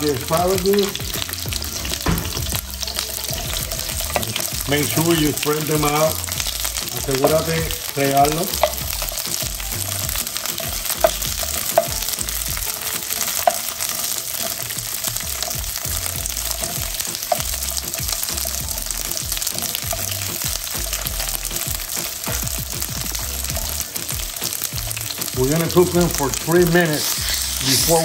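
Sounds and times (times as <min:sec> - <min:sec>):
vegetables sizzling in hot oil: 0:00.0 - 0:28.0
wooden spatula tapping a pan: 0:08.2 - 0:12.3, 0:13.1 - 0:15.9, 0:16.6 - 0:18.6.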